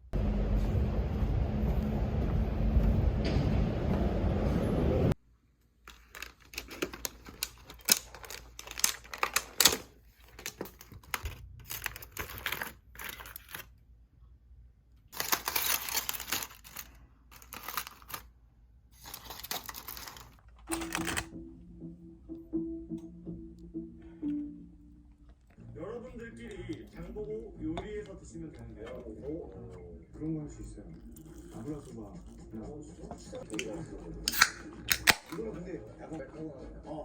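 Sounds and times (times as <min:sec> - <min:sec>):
objects being handled: 0:05.9 - 0:13.7, 0:19.0 - 0:21.3
quiet background music: 0:19.1 - 0:37.0.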